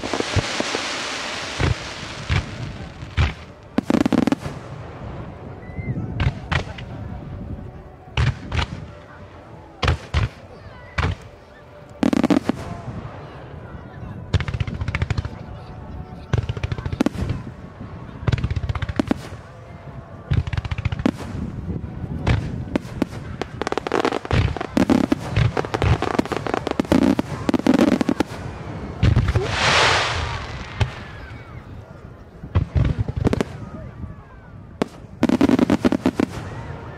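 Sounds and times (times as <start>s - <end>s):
drawn-out firework hiss: 0.0s - 3.1s, 29.2s - 31.4s
fireworks launching and bursting: 0.0s - 5.1s, 20.3s - 31.6s, 34.8s - 36.8s.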